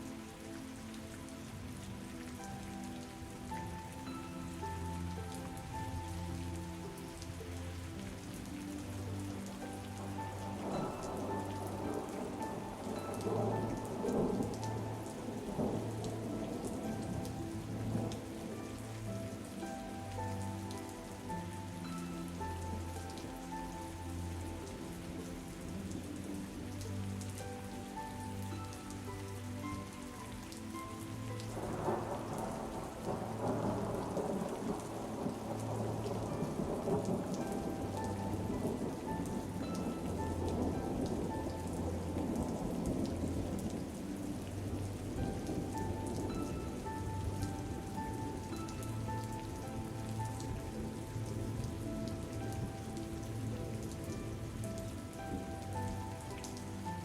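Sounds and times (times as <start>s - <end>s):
soft slow music: 0.0s - 57.0s
steady rain: 0.0s - 57.0s.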